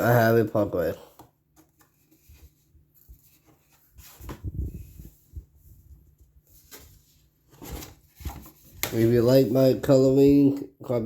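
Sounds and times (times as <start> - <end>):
paper pages being turned: 6.2 - 9.6.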